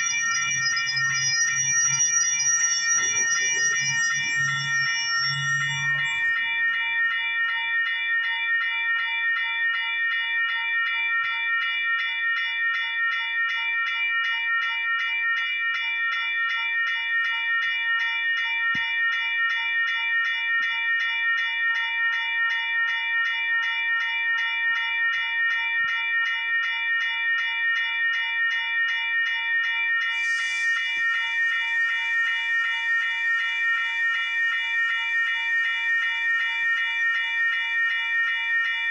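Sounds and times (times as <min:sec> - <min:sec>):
crossing bell ringing: 0:00.0 - 0:12.9.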